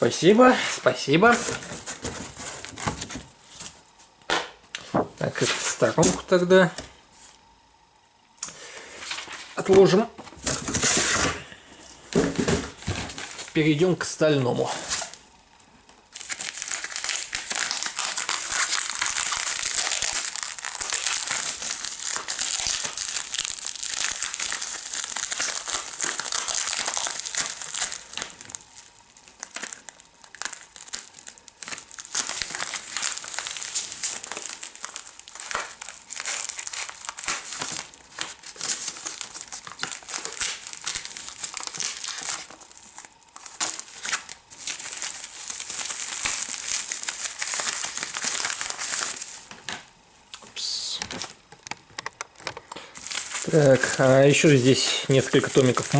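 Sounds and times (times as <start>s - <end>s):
packaging crinkling and rustling: 0.0s - 4.0s, 9.0s - 55.9s.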